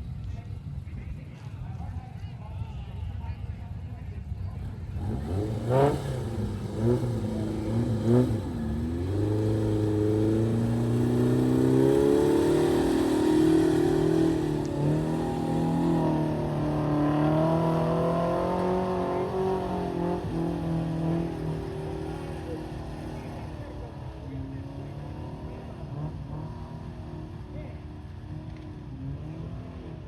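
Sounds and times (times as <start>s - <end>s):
truck engine revving: 4.6s - 28.0s.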